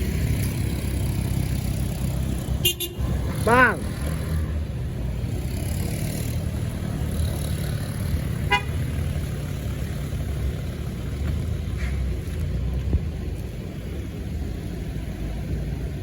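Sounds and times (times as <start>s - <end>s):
traffic engine rumble: 0.0s - 16.0s
vehicle horn toot: 2.6s - 3.0s, 8.5s - 8.8s.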